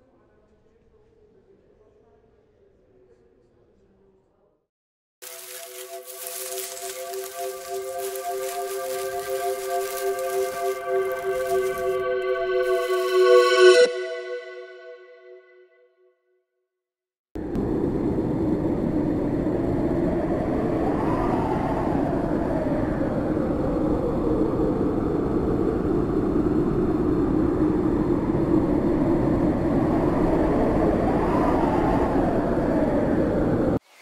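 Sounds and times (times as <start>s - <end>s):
strong wind blowing: 5.4s - 13.4s, 17.4s - 33.8s.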